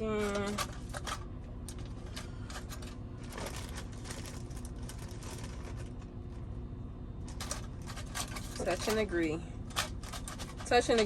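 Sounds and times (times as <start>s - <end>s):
aluminum foil crinkling: 0.0s - 6.1s.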